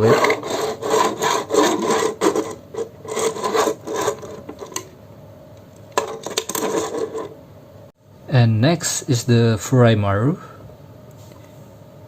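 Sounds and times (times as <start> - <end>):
plastic wheels rasping on tabletop: 0.0 - 4.8.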